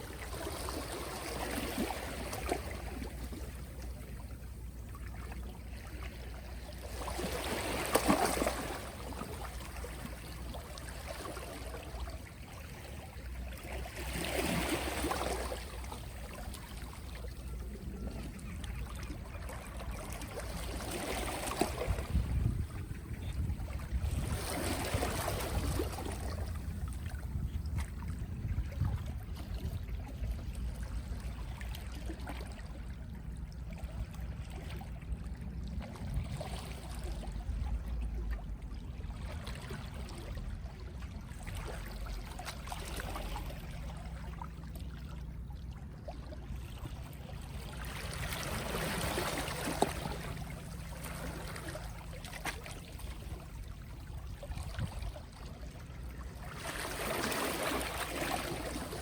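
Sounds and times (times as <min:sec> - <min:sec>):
steady low rumble: 0:21.8 - 0:32.0.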